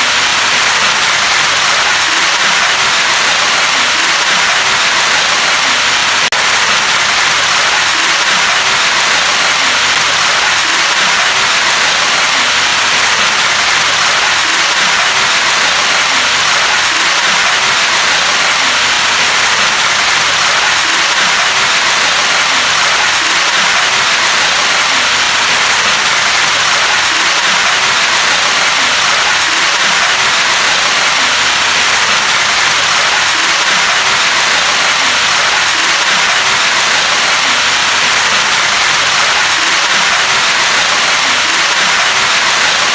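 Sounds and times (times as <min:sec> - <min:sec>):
rain falling steadily: 0:00.0 - 0:42.9.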